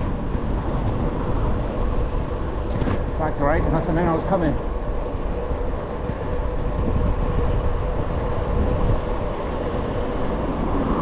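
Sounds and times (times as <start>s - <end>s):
road noise: 0.0s - 11.0s
wind buffeting microphone: 0.0s - 11.0s.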